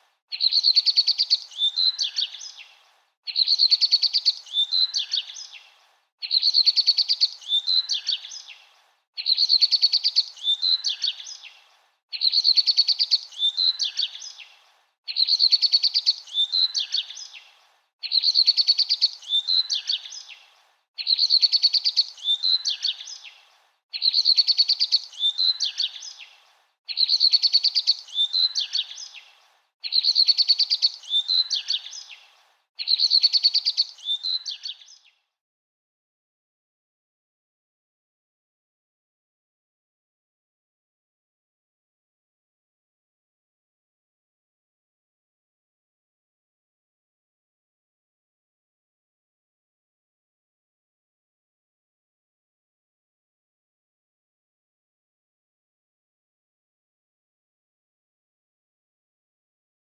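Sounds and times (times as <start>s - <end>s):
bird song chirps and trill: 0.3s - 35.3s.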